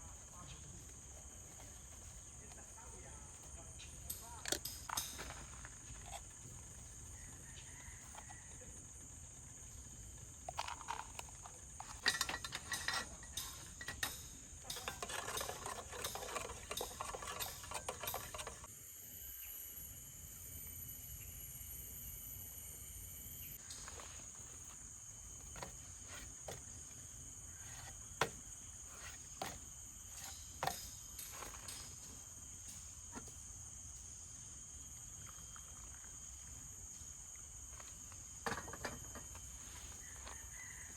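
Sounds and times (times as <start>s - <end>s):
forest insects droning: 0.0s - 40.9s
clinks and knocks: 10.5s - 18.7s, 29.0s - 32.8s, 38.4s - 39.5s
rattling handling noise: 10.5s - 18.7s, 38.4s - 40.4s.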